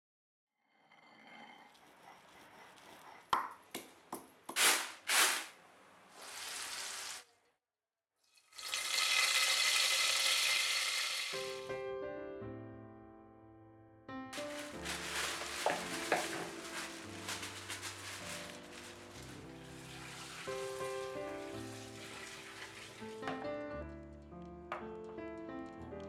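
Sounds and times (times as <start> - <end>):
food sizzling in a hot pan: 8.4 - 11.7, 19.3 - 23.2
piano notes: 11.3 - 26.0.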